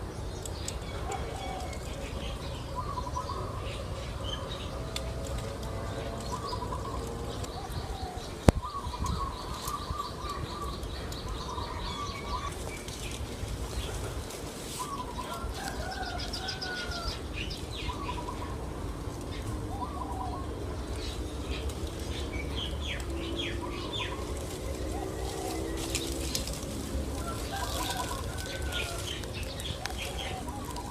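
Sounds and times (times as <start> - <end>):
birds alarm calls: 0.7 - 30.9
steady low rumble: 17.0 - 30.9.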